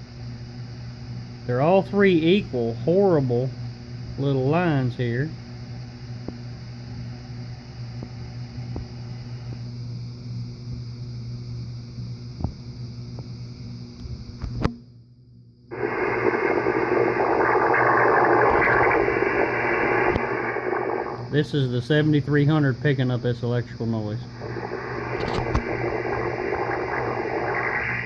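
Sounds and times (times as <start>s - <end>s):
radio speaker hum: 1.4s - 5.4s, 15.7s - 28.0s
harsh radio noise: 15.7s - 21.4s, 24.2s - 28.0s.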